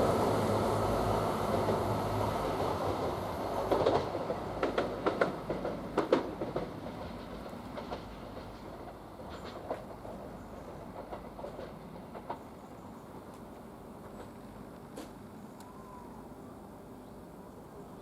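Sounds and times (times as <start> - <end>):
train engine hum: 0.0 - 18.0
wheels clacking over rail joints: 2.5 - 15.2.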